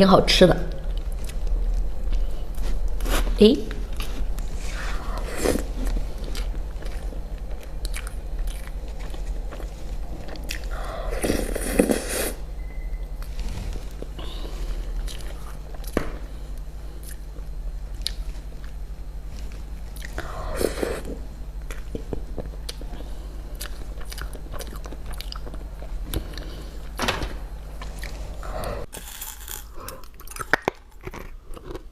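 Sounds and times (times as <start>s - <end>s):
faint low hum: 0.0s - 31.9s
chewing and crunching: 3.9s - 12.0s, 13.2s - 16.0s, 17.0s - 20.8s, 21.6s - 26.6s, 27.8s - 31.9s.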